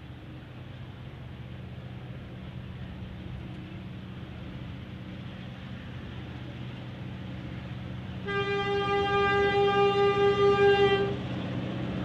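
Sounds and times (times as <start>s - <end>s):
locomotive engine drone: 0.0s - 12.0s
locomotive horn chord: 8.2s - 11.2s.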